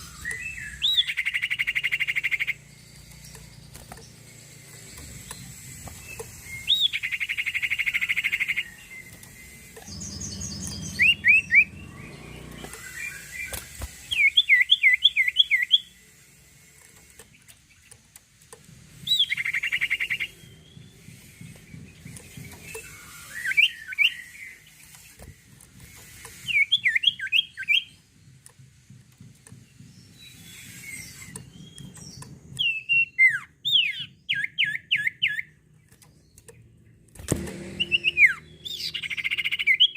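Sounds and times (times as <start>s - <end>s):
songbird whistled notes: 0.0s - 3.4s, 4.2s - 16.1s, 19.0s - 28.0s, 29.9s - 35.6s, 37.4s - 39.9s
buzzy rapid bird trill: 0.0s - 17.9s, 18.8s - 28.2s, 37.4s - 39.9s.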